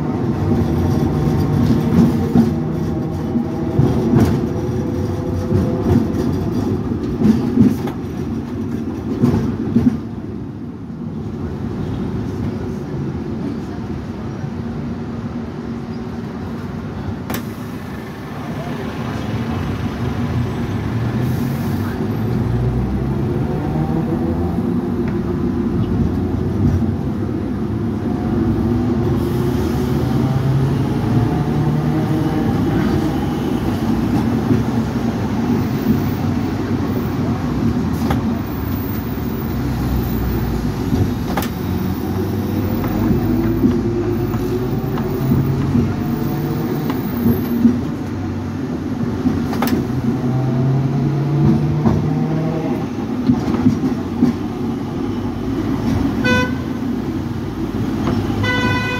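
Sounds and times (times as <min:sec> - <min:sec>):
electric tram rumbling on track: 0:00.0 - 0:58.9
tram motor whine: 0:14.4 - 0:58.9.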